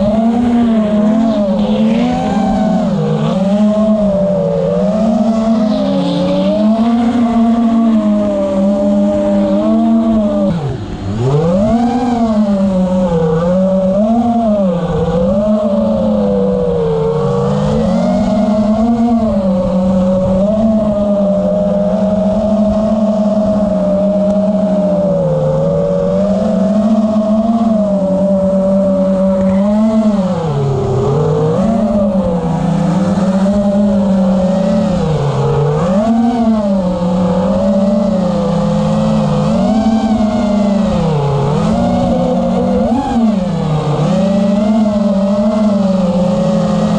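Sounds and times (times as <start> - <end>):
motor running hard: 0.0 - 46.9.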